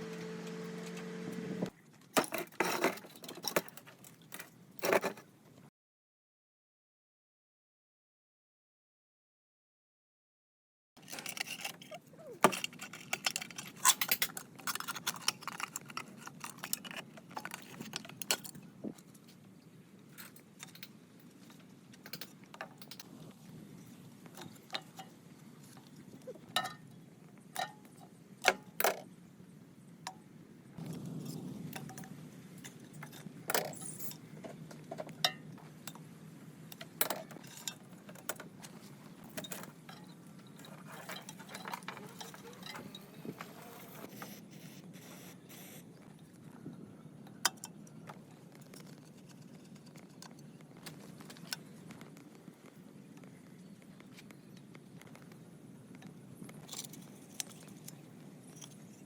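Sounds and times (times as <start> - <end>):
metal tools clinking: 11.0 - 18.6, 39.3 - 43.1.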